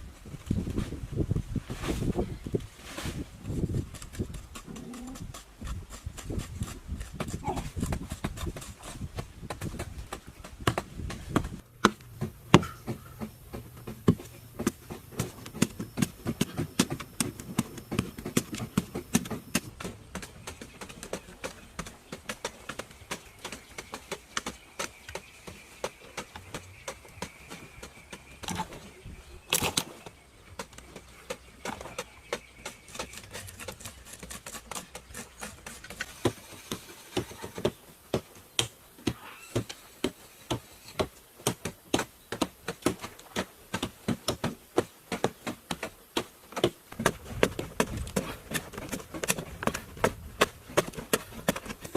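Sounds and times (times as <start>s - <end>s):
sharp taps and knocks: 3.9s - 28.6s.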